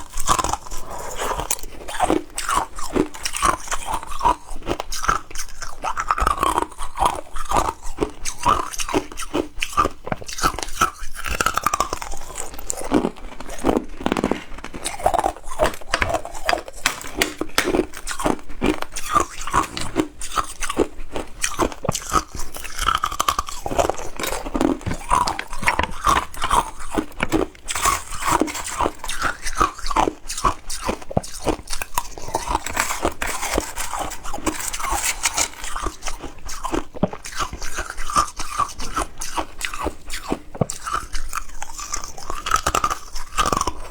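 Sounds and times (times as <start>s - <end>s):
ice crunching between teeth: 0.0s - 43.9s.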